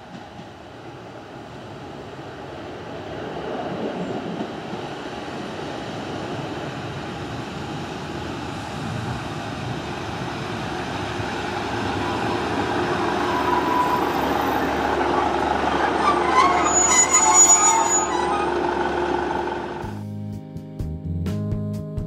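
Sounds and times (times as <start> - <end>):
diesel train engine and wheels: 0.0 - 20.0
high-pitched metallic squeals: 13.1 - 19.8.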